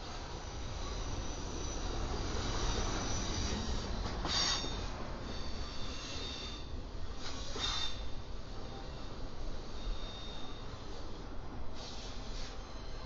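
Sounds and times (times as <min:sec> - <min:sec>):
freight train rumble: 0:00.0 - 0:13.0
steel wheel squeal: 0:00.5 - 0:08.9, 0:12.3 - 0:13.0.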